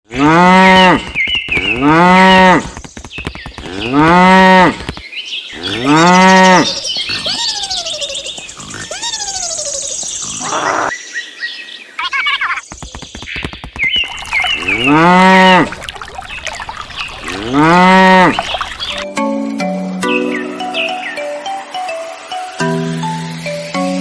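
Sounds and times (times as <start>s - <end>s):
cattle mooing: 0.1s - 1.1s, 1.8s - 2.6s, 3.7s - 4.8s, 5.6s - 6.8s, 14.6s - 15.8s, 17.2s - 18.5s.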